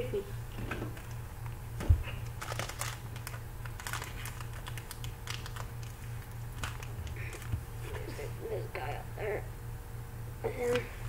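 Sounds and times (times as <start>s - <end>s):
steady low hum: 0.0s - 11.0s
cards being shuffled: 1.0s - 8.1s.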